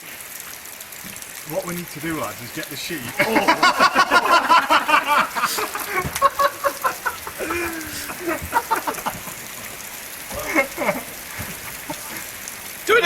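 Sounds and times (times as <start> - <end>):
rain hissing: 0.0 - 13.0
young men shouting and whooping: 2.8 - 9.1
men laughing: 2.9 - 12.4.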